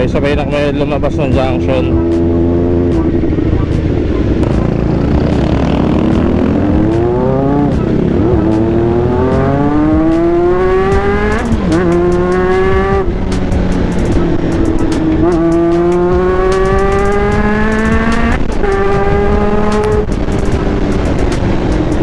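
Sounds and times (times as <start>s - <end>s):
wind and road noise: 0.0s - 22.0s
motorcycle engine accelerating: 1.0s - 22.0s.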